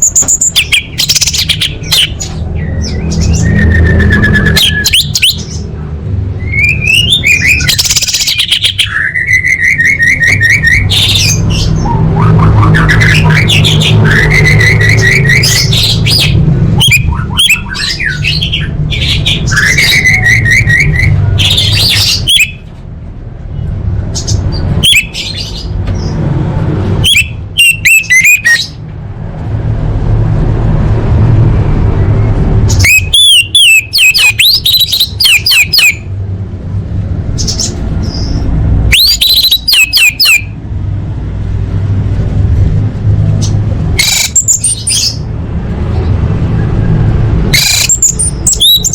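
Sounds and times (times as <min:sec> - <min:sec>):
thrush chattering calls: 0:00.0 - 0:05.7, 0:06.4 - 0:22.6, 0:27.0 - 0:28.8, 0:32.6 - 0:36.2, 0:37.3 - 0:40.6, 0:43.3 - 0:46.7, 0:47.5 - 0:48.9.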